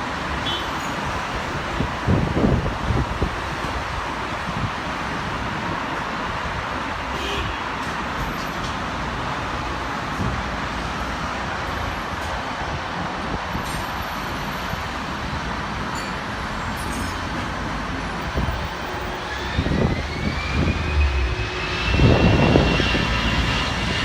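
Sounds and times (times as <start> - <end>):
jet airliner engines: 17.4 - 24.0.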